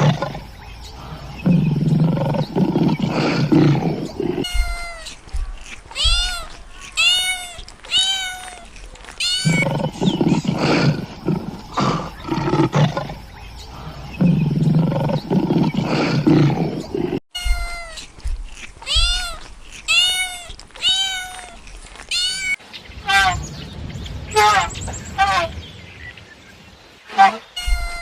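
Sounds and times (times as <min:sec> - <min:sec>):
big cat roaring growls: 0:00.0 - 0:04.4, 0:09.4 - 0:17.2.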